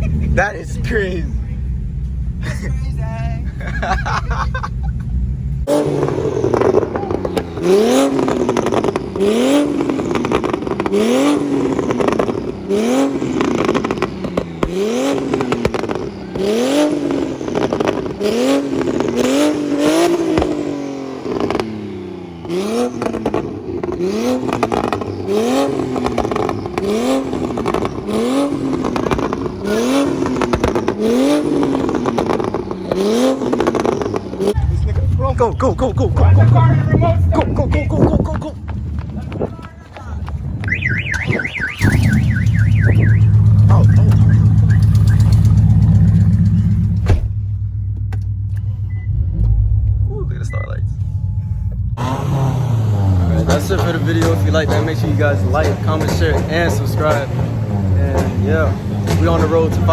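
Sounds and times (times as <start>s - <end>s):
car engine revving: 0.0s - 59.9s
exhaust pops: 5.5s - 52.6s, 53.3s - 59.9s
low rumble: 34.6s - 52.0s.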